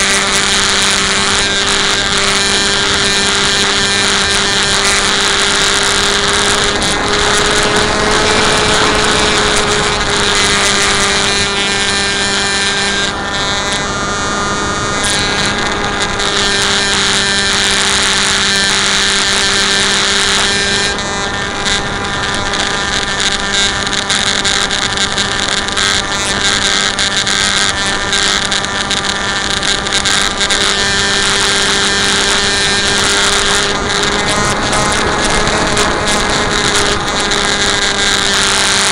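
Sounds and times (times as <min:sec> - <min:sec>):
wind rushing over microphone: 0:00.0 - 0:18.5, 0:19.1 - 0:38.9
electric motor and propeller whine: 0:00.0 - 0:38.9.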